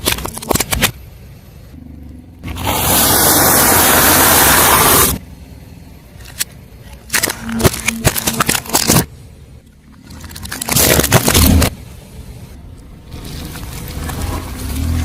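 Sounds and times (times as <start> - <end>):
objects cracking and snapping: 0.0 - 1.0, 6.2 - 9.1, 10.0 - 11.8
car tyre rolling rushing noise: 2.4 - 5.2.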